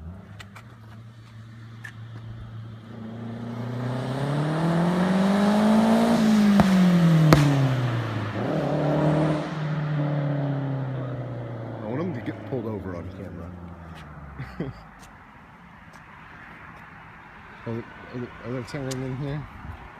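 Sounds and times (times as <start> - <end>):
car accelerating past: 0.0 - 14.4
exhaust cracks: 0.0 - 15.2.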